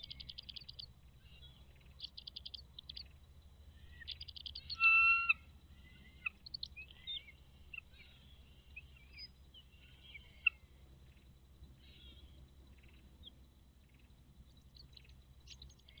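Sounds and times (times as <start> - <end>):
birds chirping: 0.0 - 16.0
faint low hum: 0.0 - 16.0.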